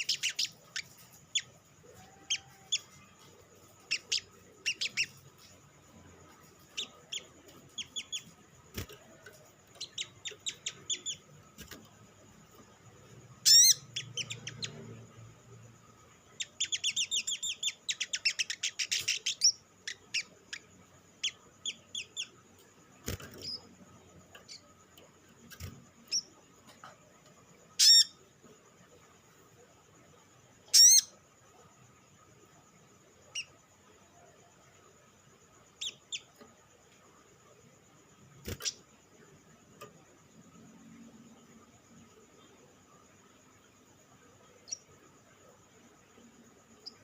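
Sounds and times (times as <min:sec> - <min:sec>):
bird chattering: 0:03.8 - 0:05.2, 0:09.8 - 0:11.2, 0:13.4 - 0:14.8
bird chip calls: 0:03.9 - 0:05.2, 0:13.4 - 0:14.8.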